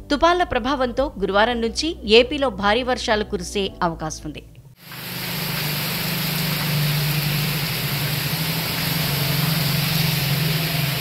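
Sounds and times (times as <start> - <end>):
heavy rain on a road: 4.9 - 11.0.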